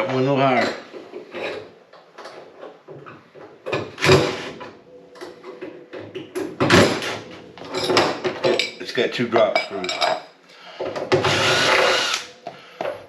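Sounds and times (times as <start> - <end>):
metal hardware knocking and clattering: 7.6 - 8.8, 9.4 - 10.2.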